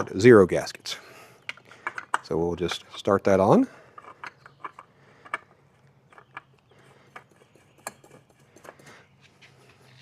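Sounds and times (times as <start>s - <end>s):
faint irregular clicks: 1.4s - 2.3s, 4.0s - 8.9s.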